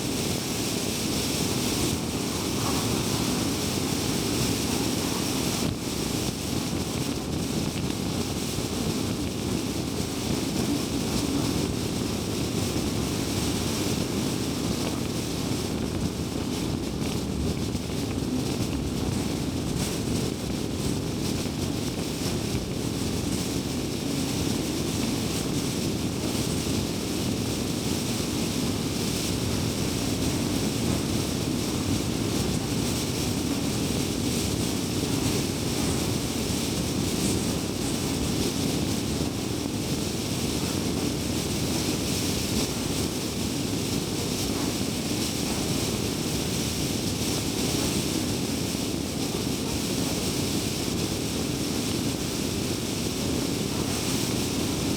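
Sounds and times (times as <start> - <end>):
wind noise: 0.0 - 54.9
tyres rumbling on road: 0.2 - 7.7.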